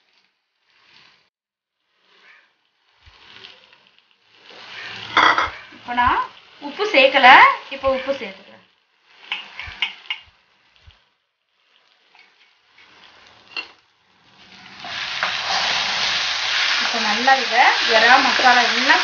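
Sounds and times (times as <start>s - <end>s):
prawns sizzling in a frying pan: 0.0s - 19.0s
spatula scraping pan with squeak: 9.3s - 10.2s.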